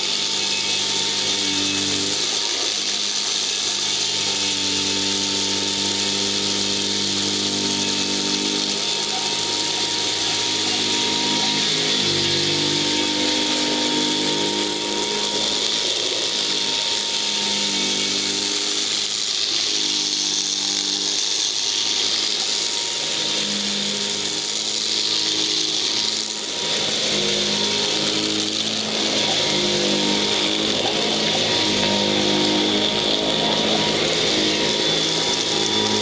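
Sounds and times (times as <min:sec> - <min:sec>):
upright vacuum running: 0:00.0 - 0:36.0.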